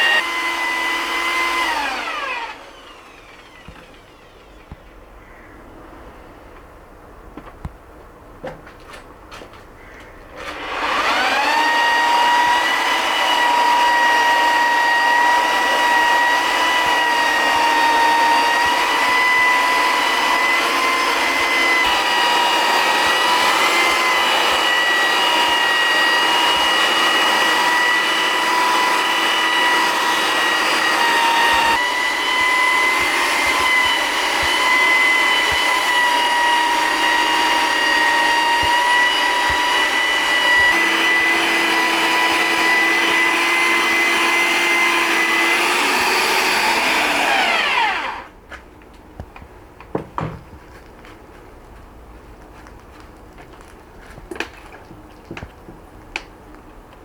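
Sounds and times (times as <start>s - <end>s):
electric motor whining: 0.0s - 5.0s, 10.4s - 48.3s.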